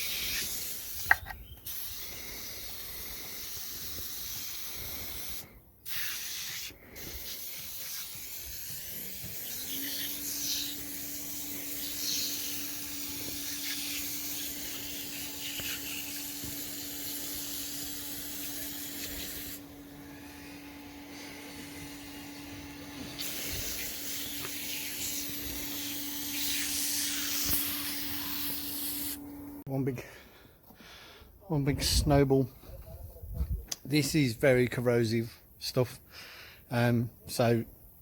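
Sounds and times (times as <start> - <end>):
cleaner spray hissing: 0.0 - 29.3
steady motor hum: 2.0 - 29.6.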